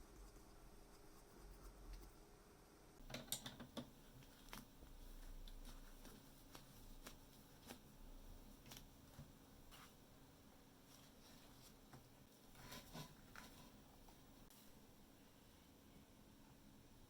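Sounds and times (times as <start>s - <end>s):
small parts clicking and tapping: 3.0s - 4.0s.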